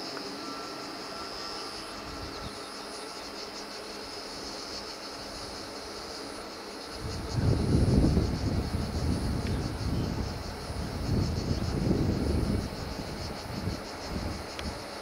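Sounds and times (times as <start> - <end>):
distant train rumble: 5.1 - 15.0.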